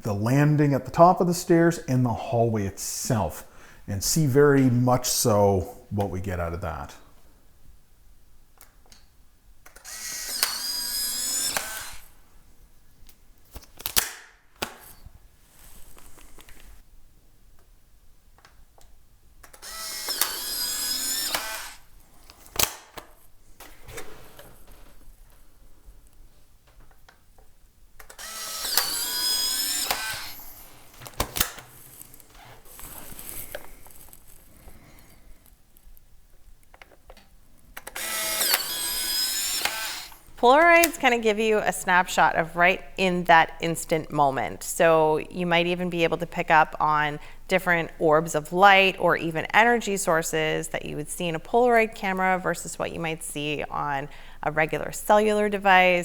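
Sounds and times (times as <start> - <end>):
instant camera shutter click: 9.7 - 12.0, 19.5 - 21.8, 28.0 - 30.5, 37.9 - 40.2
camera motor whirring: 9.7 - 12.2, 19.5 - 21.9, 28.0 - 30.7, 37.9 - 40.9.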